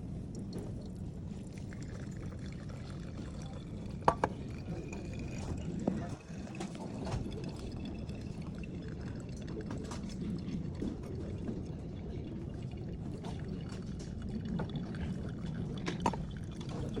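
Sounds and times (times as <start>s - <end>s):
liquid pouring: 0.0s - 17.0s.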